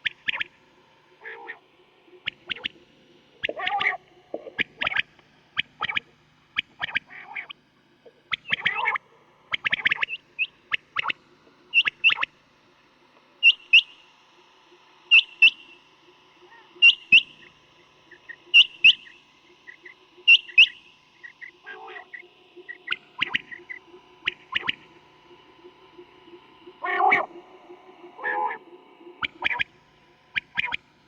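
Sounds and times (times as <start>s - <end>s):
quail calling: 1.2s - 1.6s, 3.4s - 5.0s, 8.3s - 9.0s, 15.1s - 15.6s, 16.4s - 17.4s, 18.1s - 29.7s.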